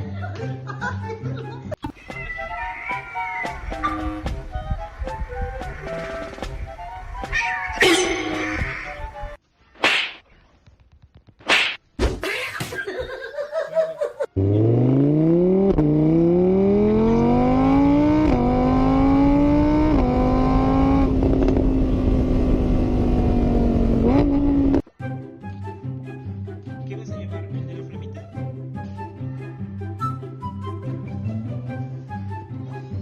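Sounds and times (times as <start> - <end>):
car engine accelerating hard: 14.4 - 24.8.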